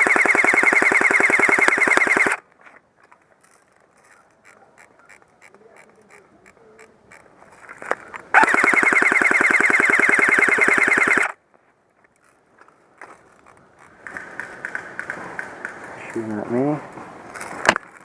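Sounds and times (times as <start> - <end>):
airsoft rifle firing full auto: 0.0 - 2.4, 8.4 - 11.4.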